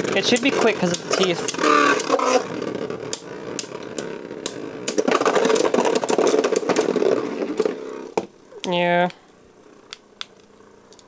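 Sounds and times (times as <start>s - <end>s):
spinning tops whirring: 0.0s - 11.0s
spinning tops clacking: 0.1s - 8.8s.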